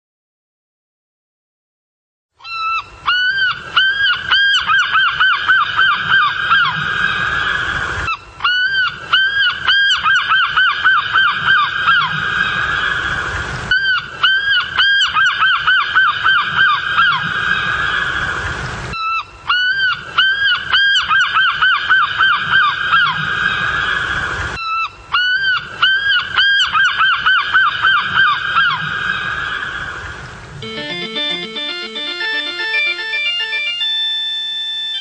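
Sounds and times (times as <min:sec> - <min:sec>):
loud honking bird calls: 0:30.6 - 0:35.0.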